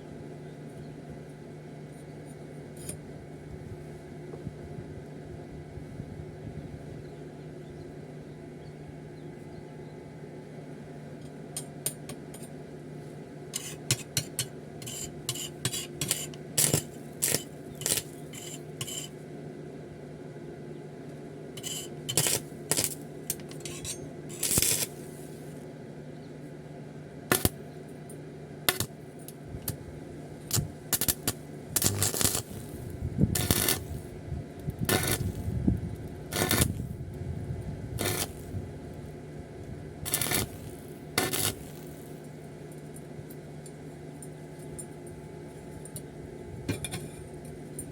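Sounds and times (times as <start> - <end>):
steady low hum: 0.0 - 47.9
metal scraping: 13.6 - 19.1, 21.6 - 25.3, 30.5 - 34.1, 34.9 - 35.5, 36.3 - 36.9, 38.0 - 38.5, 40.1 - 42.1.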